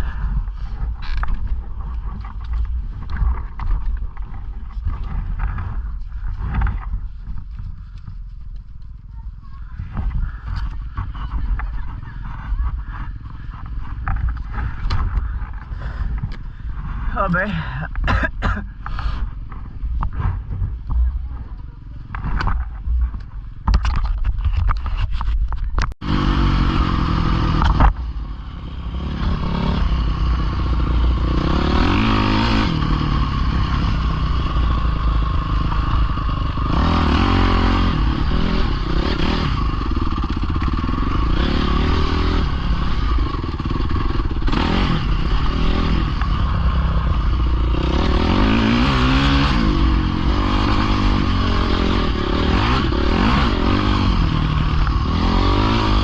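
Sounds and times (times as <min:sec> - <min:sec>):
clatter: 0:00.1 - 0:09.2, 0:18.0 - 0:56.0
pit bike engine revving: 0:26.0 - 0:56.0.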